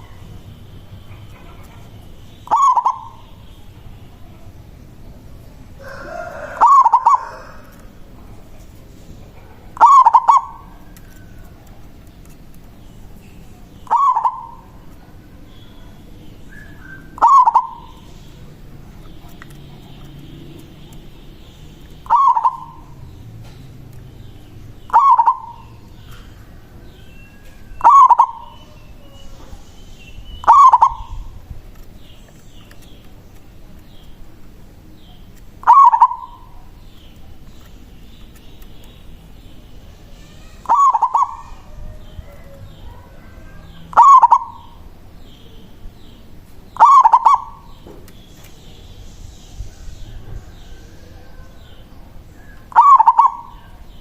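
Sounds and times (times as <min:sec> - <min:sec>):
dove cooing: 0:01.1 - 0:03.4, 0:05.8 - 0:08.4, 0:09.3 - 0:11.0, 0:13.8 - 0:15.8, 0:16.5 - 0:18.1, 0:22.0 - 0:23.6, 0:24.8 - 0:26.4, 0:27.8 - 0:29.5, 0:30.4 - 0:31.4, 0:35.6 - 0:36.7, 0:40.4 - 0:44.8, 0:46.8 - 0:47.8, 0:50.0 - 0:54.0.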